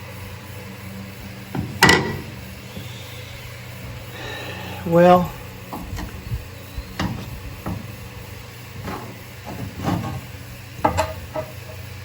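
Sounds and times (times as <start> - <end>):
steady low hum: 0.0 - 12.0
metal parts knocking and scraping: 1.5 - 2.4, 7.0 - 11.9.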